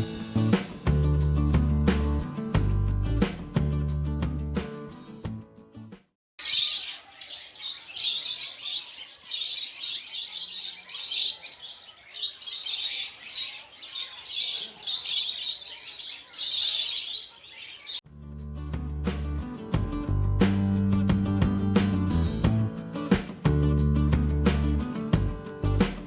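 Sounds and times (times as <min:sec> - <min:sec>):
small birds chirping: 0:06.4 - 0:18.0.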